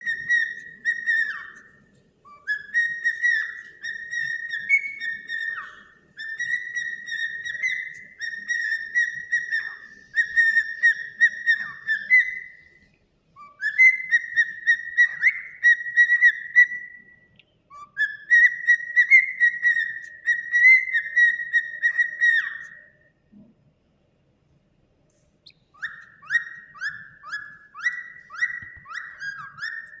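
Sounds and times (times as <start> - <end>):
cockatiel chirping: 0.0 - 12.7, 13.4 - 17.1, 17.7 - 23.0, 25.4 - 30.0
cockatiel whistling: 0.0 - 12.8, 13.4 - 23.0, 25.4 - 30.0.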